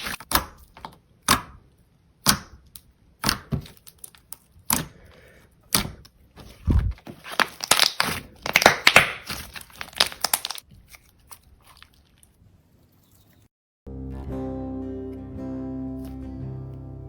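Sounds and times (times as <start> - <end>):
slime squeezed with crackly pops: 7.2 - 10.6.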